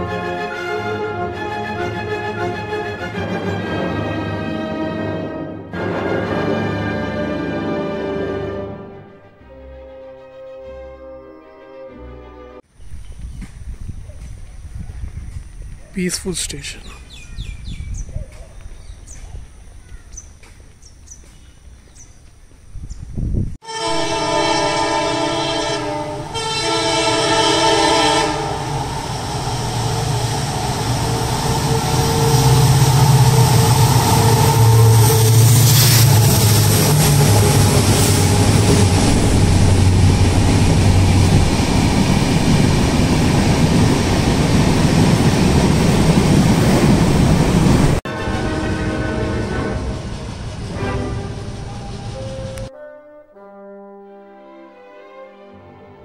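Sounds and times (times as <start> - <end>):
train wheels rumbling on rails: 17.2 - 52.7
train horn blasts: 23.6 - 41.2, 48.1 - 54.7.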